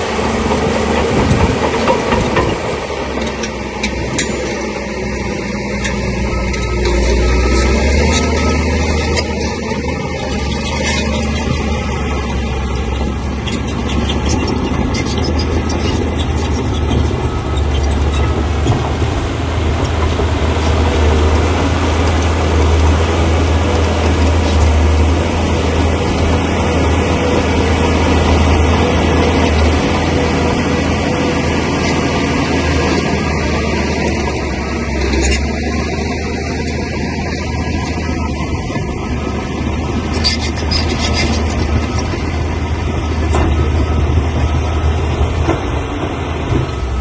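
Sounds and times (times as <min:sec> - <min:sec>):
bulldozer diesel engine: 0:00.0 - 0:47.0.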